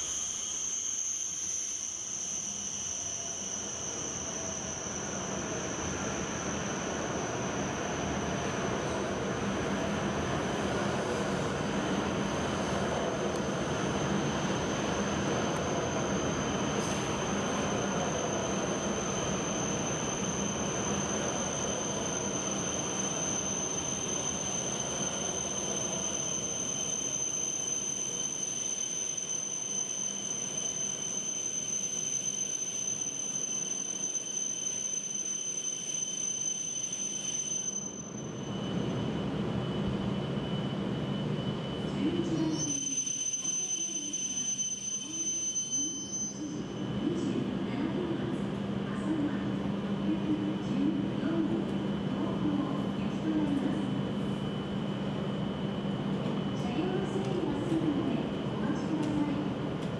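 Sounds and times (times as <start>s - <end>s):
high whine: 0.0s - 35.2s
train wheel and rail noise: 0.0s - 59.9s.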